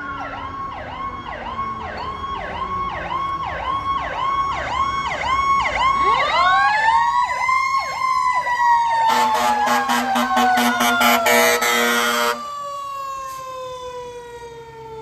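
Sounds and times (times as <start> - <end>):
electronic siren yelping: 0.0 - 15.0
pulsing air horn blare: 9.0 - 12.5.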